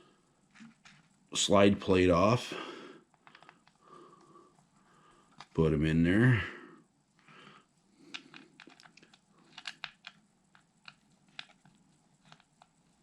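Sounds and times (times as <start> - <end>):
small screws and plastic parts clicking: 3.1 - 3.8, 8.0 - 13.0.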